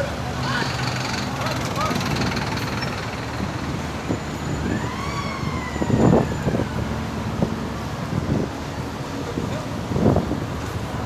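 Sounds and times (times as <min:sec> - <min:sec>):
road traffic noise: 0:00.0 - 0:11.0
siren wailing: 0:03.7 - 0:07.5.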